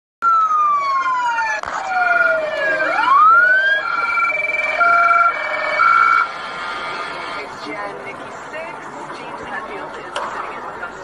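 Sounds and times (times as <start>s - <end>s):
electronic police sirens: 0.2s - 7.5s.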